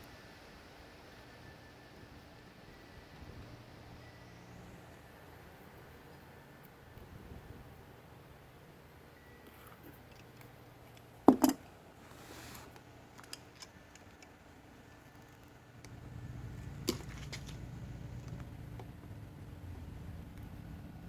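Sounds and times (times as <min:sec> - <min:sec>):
hand tools knocking on metal: 0:11.3 - 0:11.6
low steady rumble: 0:15.6 - 0:21.0.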